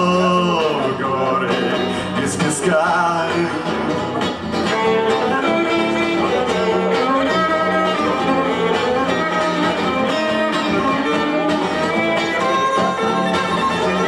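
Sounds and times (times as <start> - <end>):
guitar strumming: 0.0 - 14.0
violin melody: 3.5 - 14.0.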